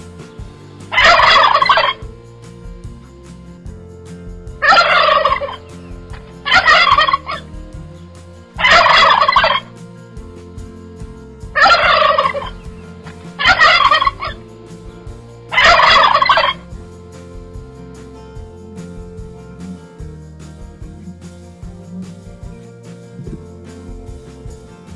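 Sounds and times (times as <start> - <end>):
domestic fowl calling: 0.9 - 2.0, 4.6 - 7.5, 8.6 - 9.7, 11.6 - 14.5, 15.5 - 16.6.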